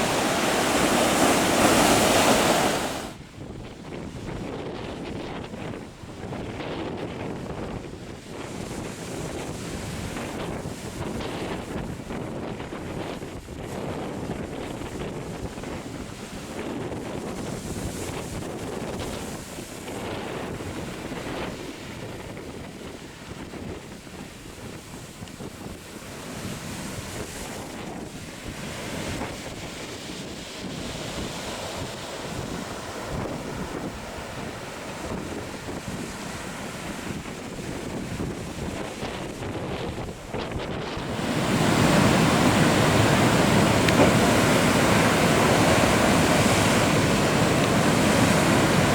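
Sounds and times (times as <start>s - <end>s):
ocean surf breaking: 0.0s - 3.2s, 26.0s - 48.9s
wind buffeting microphone: 0.0s - 48.9s.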